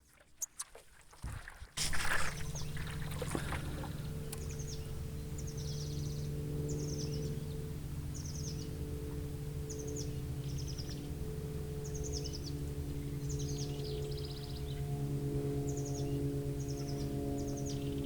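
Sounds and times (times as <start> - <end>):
paddle splashing in water: 0.0 - 5.0
steady low hum: 1.8 - 18.0.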